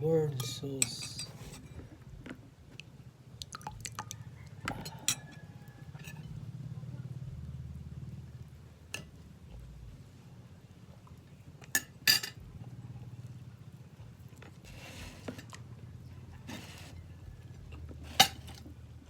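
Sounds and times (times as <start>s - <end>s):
low steady hum: 0.0s - 19.0s
utensils clinking on a plate: 0.3s - 1.8s, 4.6s - 6.4s, 11.8s - 12.4s, 17.8s - 18.7s.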